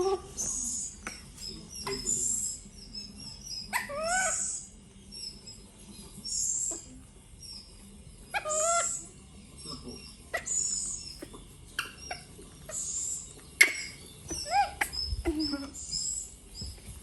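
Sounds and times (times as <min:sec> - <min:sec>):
monkey screeching: 0:03.7 - 0:04.7, 0:08.4 - 0:09.1, 0:11.8 - 0:15.8.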